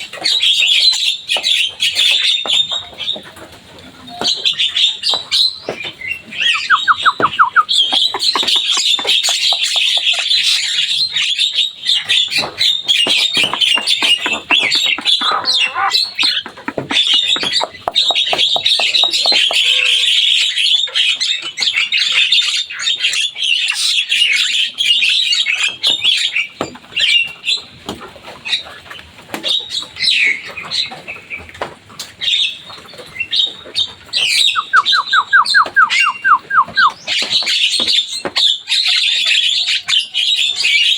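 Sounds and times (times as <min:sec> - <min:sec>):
myna chattering song: 0:06.3 - 0:10.4, 0:13.8 - 0:19.8.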